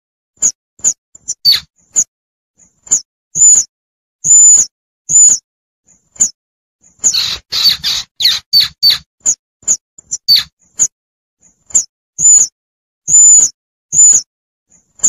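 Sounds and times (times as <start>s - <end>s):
squirrel squeaking and chirping: 0.8s - 2.1s, 2.9s - 5.4s, 6.9s - 10.9s, 11.7s - 12.5s, 13.1s - 14.3s.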